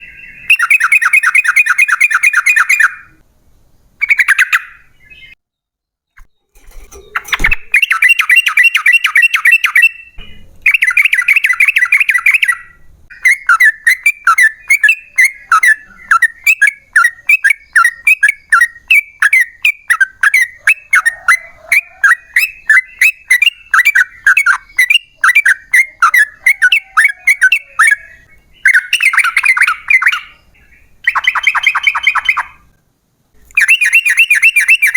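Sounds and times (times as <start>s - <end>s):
bird singing rattling runs: 6.2s - 12.6s.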